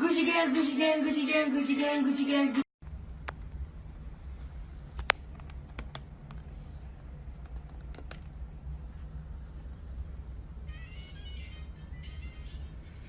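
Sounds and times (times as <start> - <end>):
steady low hum: 2.8 - 13.0.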